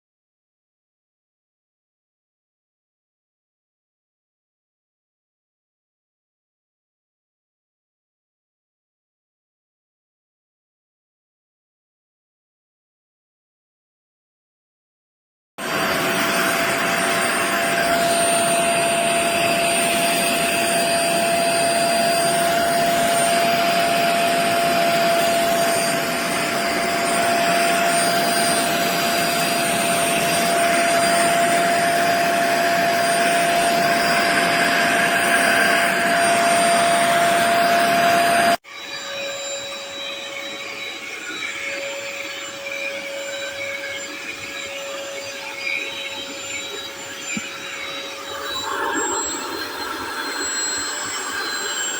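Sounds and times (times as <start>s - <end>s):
spot cleaner suction motor whine: 15.6s - 51.9s.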